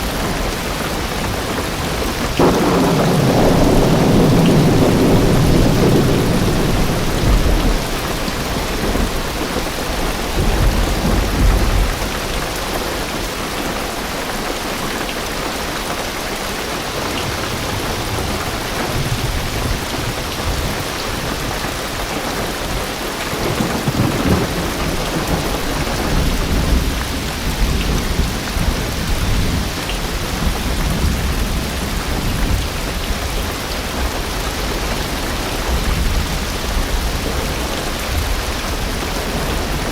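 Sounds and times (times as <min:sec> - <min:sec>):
distant thunder rumbles: 0:00.0 - 0:13.0, 0:22.4 - 0:39.9
heavy rain on car roof: 0:00.0 - 0:39.9.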